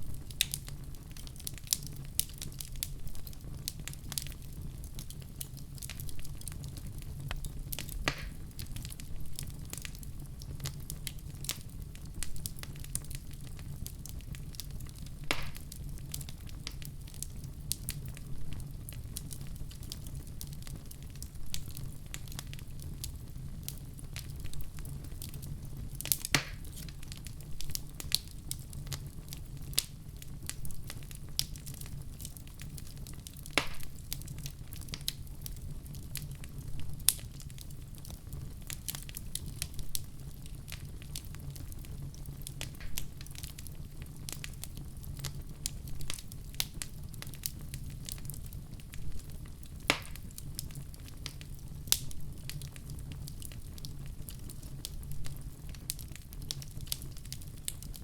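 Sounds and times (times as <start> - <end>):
low rumble of flames: 0.0 - 58.0
wood fire crackling: 0.0 - 58.0
loud fire pop: 8.0 - 8.4, 15.2 - 15.7, 26.2 - 27.0, 33.5 - 34.0, 42.7 - 43.2, 49.9 - 50.3.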